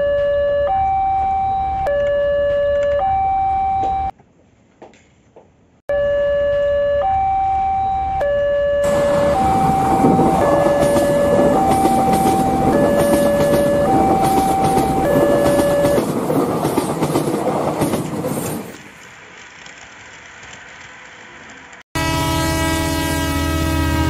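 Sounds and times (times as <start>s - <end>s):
two-tone siren: 0.0s - 4.1s, 5.9s - 16.1s
passing train rumble: 8.8s - 24.0s.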